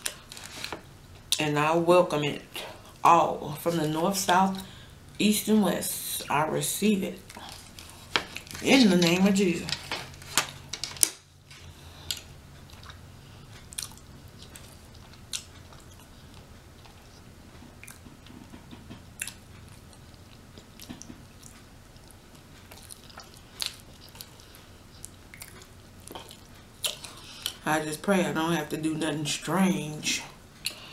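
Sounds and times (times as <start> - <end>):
faint low hum: 0.0 - 30.9
person chewing food: 7.2 - 8.6, 9.8 - 27.6.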